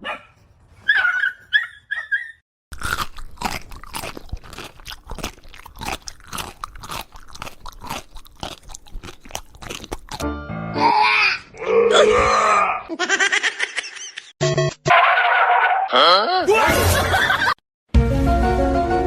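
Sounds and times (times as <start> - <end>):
dog yipping: 0.0 - 2.4
dog crunching and chewing: 2.7 - 10.2.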